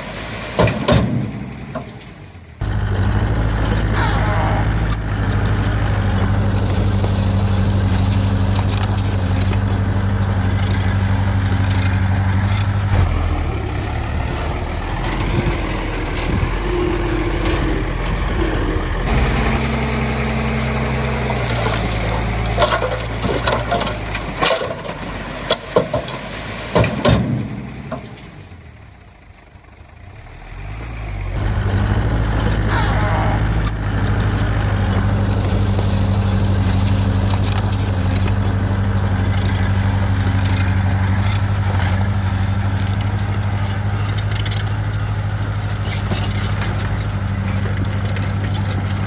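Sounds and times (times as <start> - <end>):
heavy diesel engine running: 0.0 - 49.0
metallic knocks and clanks: 0.6 - 2.2, 3.4 - 28.4.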